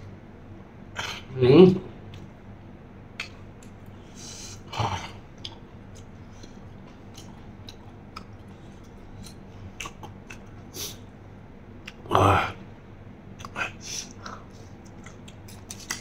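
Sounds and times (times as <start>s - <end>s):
wet mouth clicks and smacks: 3.2s - 3.8s, 5.4s - 10.5s, 13.4s - 16.0s
person chewing food: 5.3s - 10.7s, 13.4s - 16.0s.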